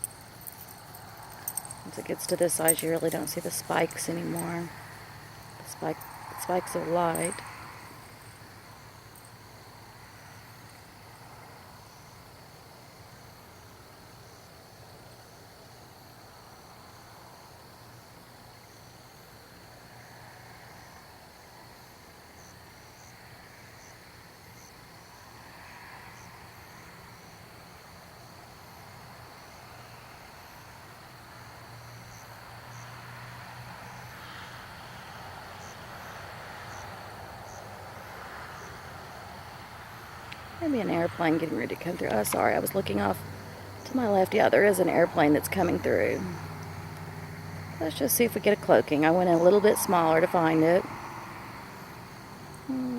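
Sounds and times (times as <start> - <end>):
distant airplane rumble: 0.0 - 11.4, 40.5 - 52.9
crickets trilling: 0.0 - 52.9.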